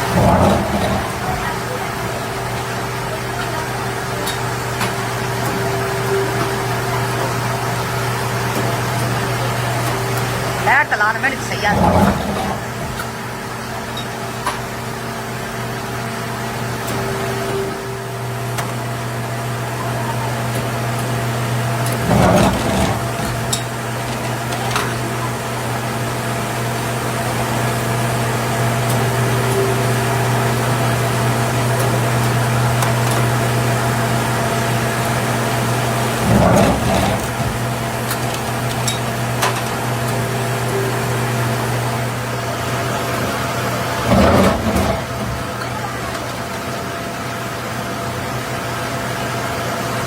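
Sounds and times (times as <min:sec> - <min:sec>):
factory machinery humming: 0:00.0 - 0:50.0.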